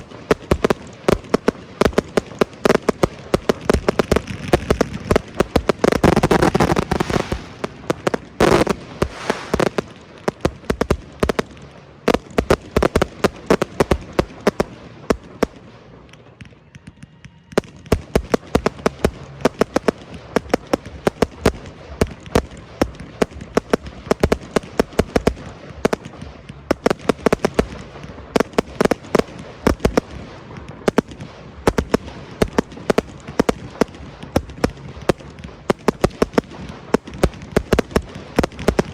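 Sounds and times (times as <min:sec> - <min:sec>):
fireworks bangs and popping: 0:00.0 - 0:16.6, 0:17.5 - 0:38.9.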